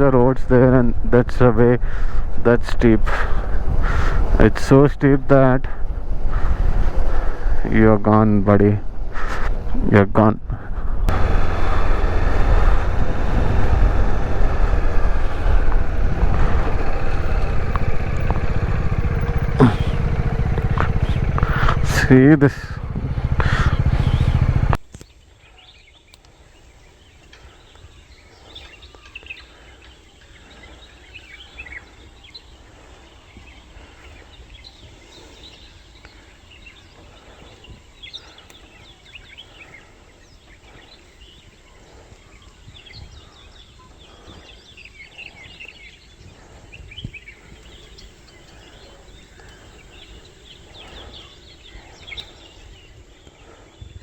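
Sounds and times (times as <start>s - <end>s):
loud motorcycle noise: 10.9s - 24.9s.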